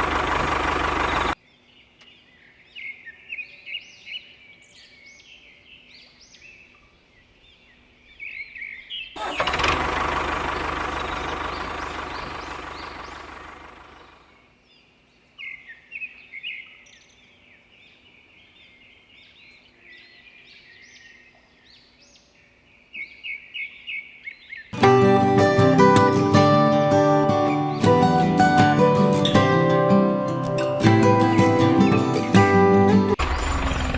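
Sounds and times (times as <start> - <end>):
small birds chirping: 0.0 - 9.2, 10.5 - 24.8.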